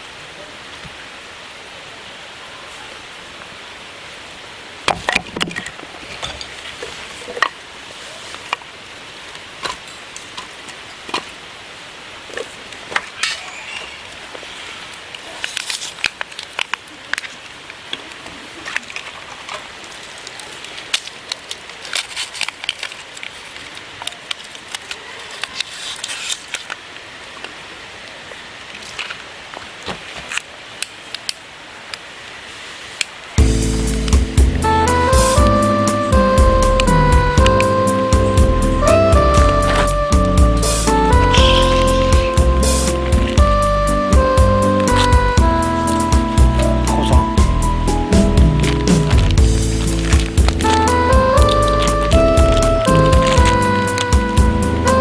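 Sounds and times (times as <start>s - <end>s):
campfire crackling and popping: 33.4s - 55.0s
music: 33.4s - 55.0s.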